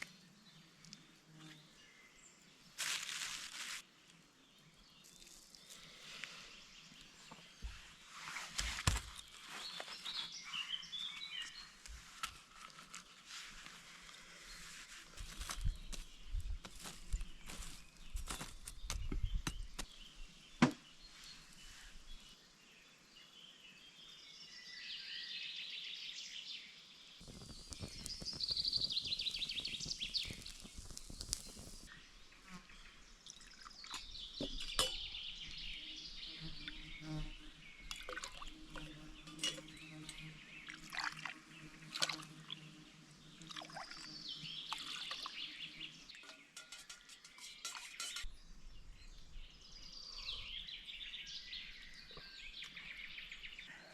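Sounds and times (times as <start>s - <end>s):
birds singing: 9.0s - 12.1s, 14.2s - 53.9s.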